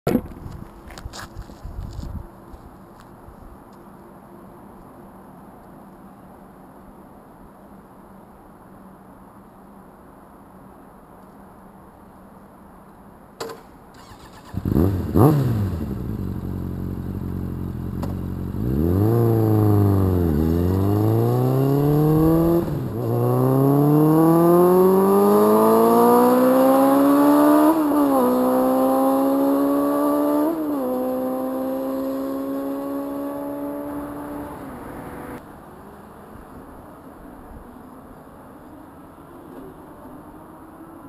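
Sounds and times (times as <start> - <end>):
motorcycle engine accelerating: 14.0 - 35.4.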